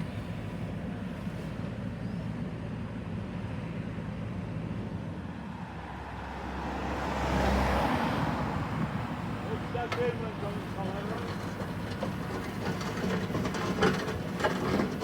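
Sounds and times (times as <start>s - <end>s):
engine humming: 9.0s - 15.0s.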